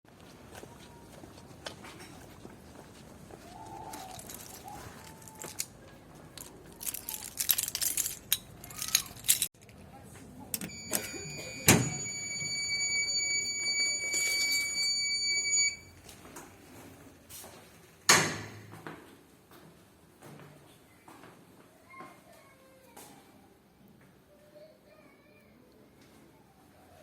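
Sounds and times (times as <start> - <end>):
clattering and rustling: 3.8 - 5.7, 6.3 - 9.8.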